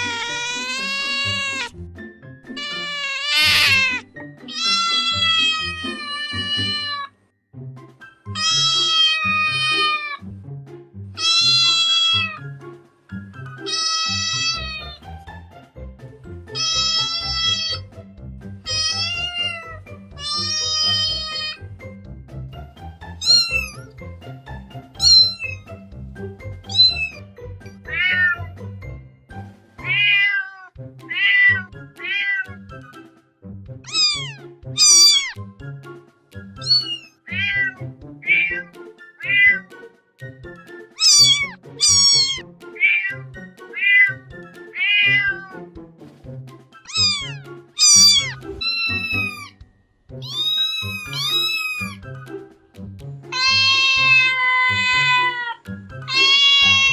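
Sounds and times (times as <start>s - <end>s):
kittens meowing: 0.0s - 1.7s, 2.6s - 7.1s, 8.4s - 10.2s, 11.2s - 12.5s, 13.6s - 15.1s, 16.6s - 17.9s, 18.7s - 21.6s, 23.2s - 23.9s, 25.0s - 25.6s, 26.7s - 28.5s, 29.8s - 32.6s, 33.9s - 35.4s, 36.6s - 39.7s, 41.0s - 45.6s, 46.9s - 49.6s, 50.2s - 52.0s, 53.3s - 56.9s
background music: 0.0s - 56.9s.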